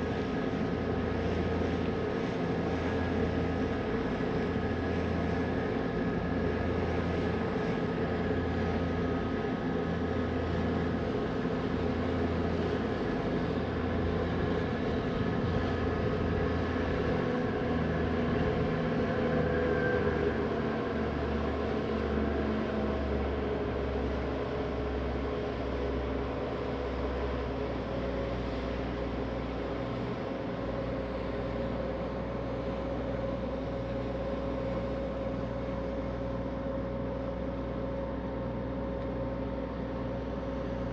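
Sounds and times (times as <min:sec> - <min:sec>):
ferry engines droning: 0:00.0 - 0:40.9.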